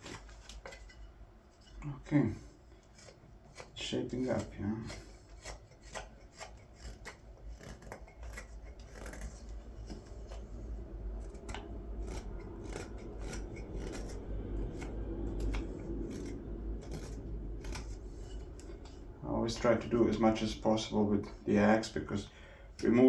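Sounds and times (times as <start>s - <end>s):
knife slicing wood: 2.8s - 19.2s.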